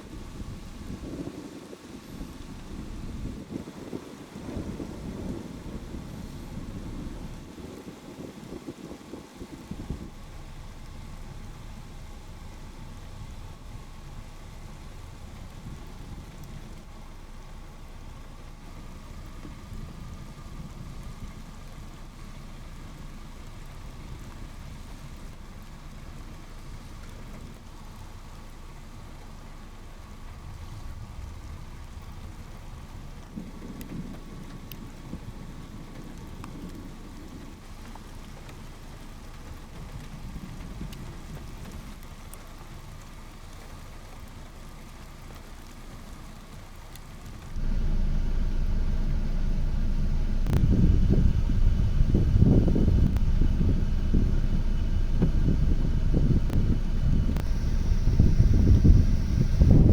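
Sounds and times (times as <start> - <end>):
steady rain: 0.0 - 59.9
low thunder rumbling: 47.5 - 59.9
loud low rumble: 47.6 - 59.9.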